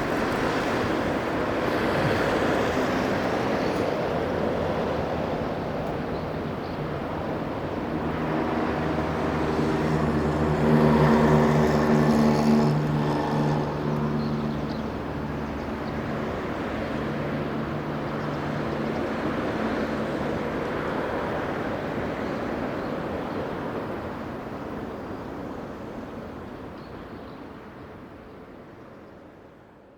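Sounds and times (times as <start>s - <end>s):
motor engine droning past: 7.9s - 18.8s.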